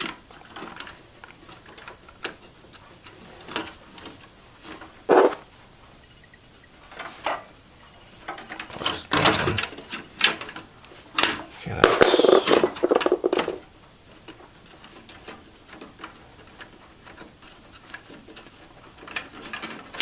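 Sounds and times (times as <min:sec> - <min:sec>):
clicks and knocks of hands: 0:11.7 - 0:13.6.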